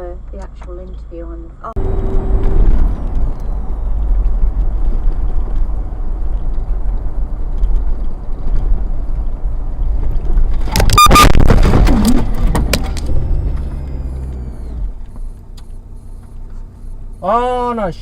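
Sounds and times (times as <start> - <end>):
road and engine rumble: 0.0 - 18.0
loud knocks and clatter: 10.0 - 13.6
brief high beep: 10.8 - 11.4.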